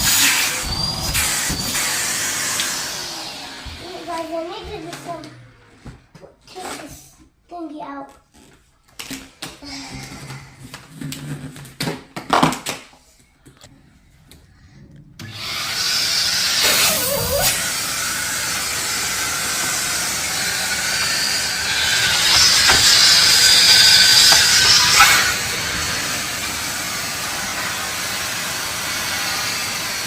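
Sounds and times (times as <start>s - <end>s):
vacuum cleaner running: 0.0s - 5.9s, 15.2s - 30.0s.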